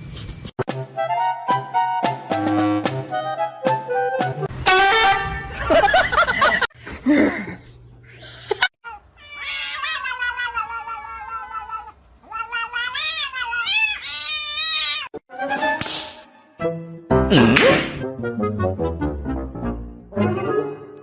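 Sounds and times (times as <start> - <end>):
cat yowling: 8.8 - 15.2.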